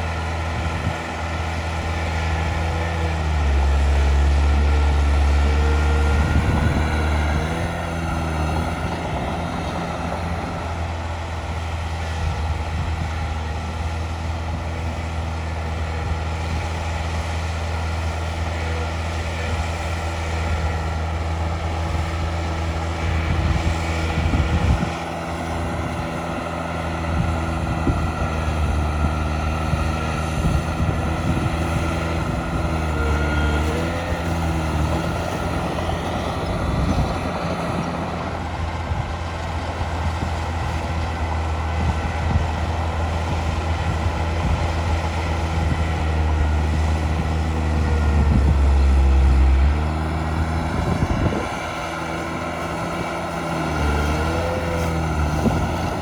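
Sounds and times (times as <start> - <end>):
heavy machine diesel engine running: 0.0 - 56.0.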